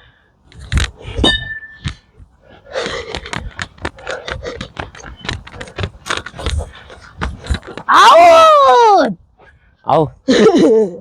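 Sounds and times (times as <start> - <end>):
rapid sharp taps: 2.7 - 7.9.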